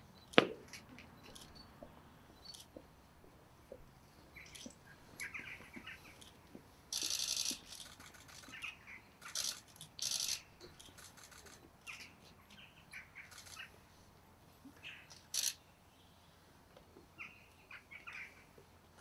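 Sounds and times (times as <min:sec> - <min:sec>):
small birds chirping: 0:03.7 - 0:06.3, 0:06.9 - 0:13.8.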